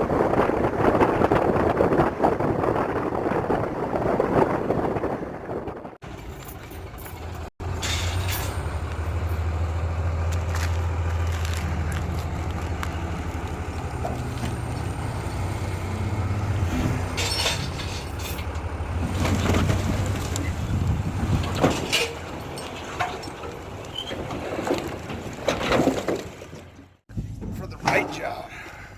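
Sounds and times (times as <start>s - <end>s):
truck engine humming: 6.0s - 25.5s
knocks and rattles: 6.0s - 28.3s.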